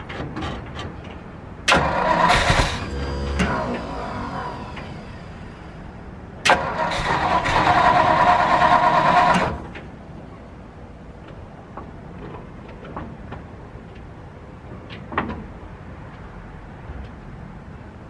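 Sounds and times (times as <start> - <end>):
engine cranking and firing: 1.7 - 9.9.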